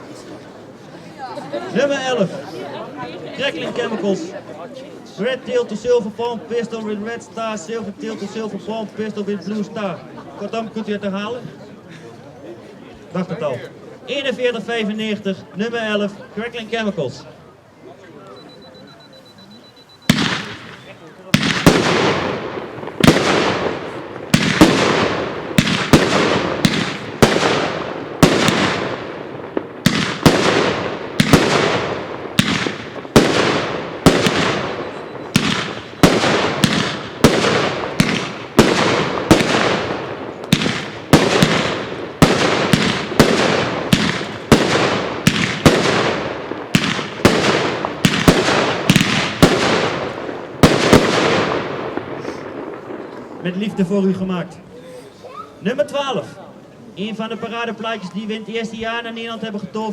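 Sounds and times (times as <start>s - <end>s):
firework bangs: 19.8s - 53.9s
firework crackle: 20.0s - 53.5s.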